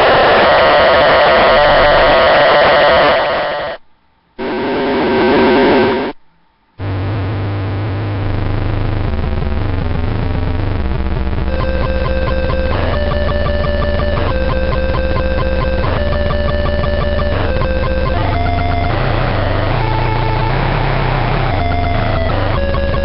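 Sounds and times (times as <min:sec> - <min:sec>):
harsh square-wave fuzz: 0:00.0 - 0:03.8, 0:04.4 - 0:06.2, 0:06.8 - 0:23.0
buzzing drone stepping pitches: 0:06.8 - 0:23.0.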